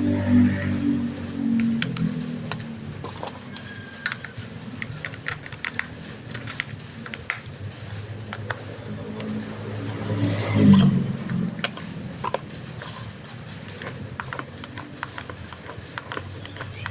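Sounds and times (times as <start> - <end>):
hands handling plastic toy: 2.5 - 7.5.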